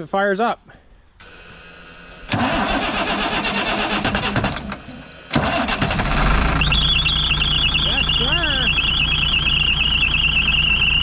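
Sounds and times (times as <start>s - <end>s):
diesel engine cranking and starting: 1.2s - 11.0s
warbling warning tone: 6.5s - 11.0s.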